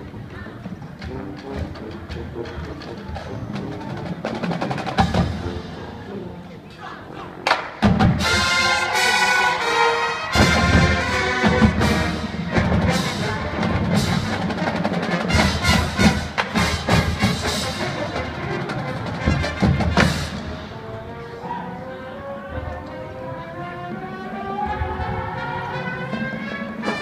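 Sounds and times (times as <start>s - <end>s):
wind band playing brass chords: 0.0s - 6.7s, 7.7s - 27.0s.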